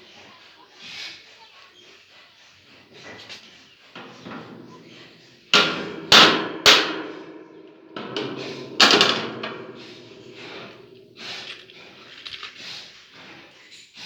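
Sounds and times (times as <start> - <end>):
sharp knocks with ringing tail: 4.0 - 12.2.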